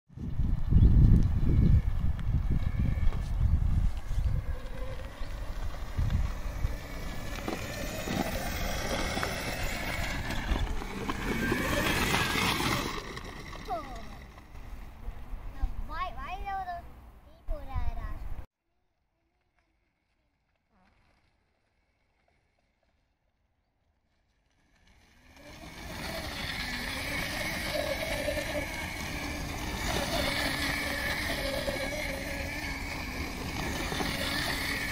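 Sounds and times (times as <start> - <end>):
wind buffeting microphone: 0.1 - 16.5
electric quad bike driving over dirt: 0.2 - 15.4, 19.3 - 34.9
tyre and ground noise: 0.2 - 18.4, 24.0 - 34.9.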